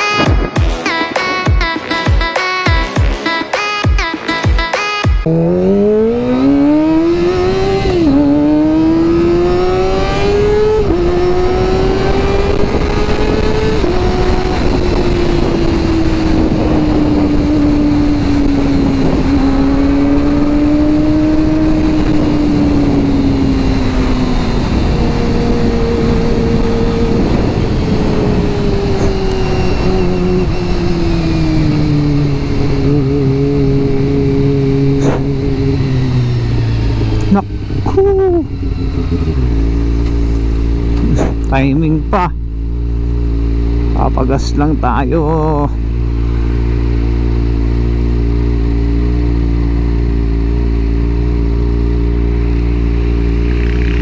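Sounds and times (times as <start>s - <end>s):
motorcycle engine accelerating: 5.2s - 54.0s
wind on microphone: 6.1s - 41.5s.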